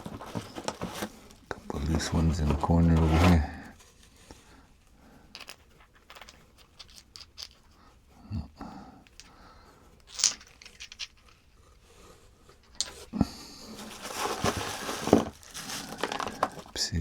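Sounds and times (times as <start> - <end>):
packing material rustling: 0.0 - 4.3, 13.6 - 17.0
stones clicking: 5.3 - 7.7, 10.0 - 11.4.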